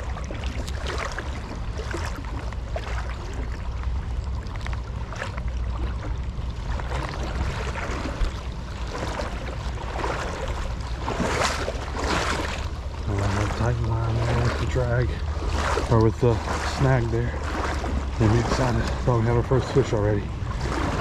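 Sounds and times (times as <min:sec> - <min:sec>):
creek water running and splashing: 0:00.0 - 0:21.0
low rumble on microphone: 0:00.0 - 0:21.0.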